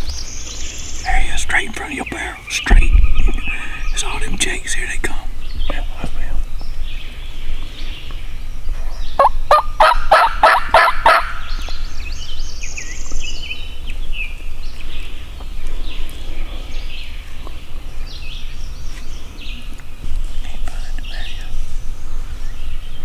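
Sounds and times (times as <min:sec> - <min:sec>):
turkey gobbling: 0:09.2 - 0:11.4.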